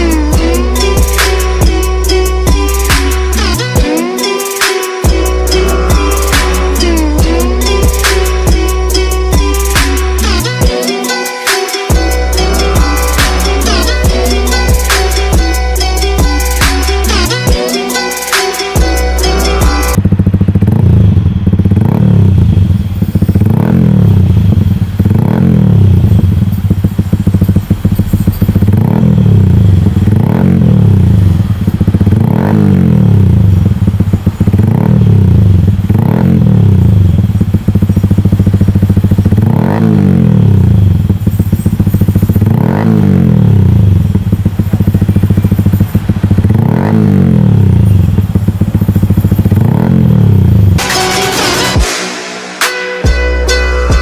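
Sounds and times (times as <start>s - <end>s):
motorcycle engine revving: 0.0s - 52.6s.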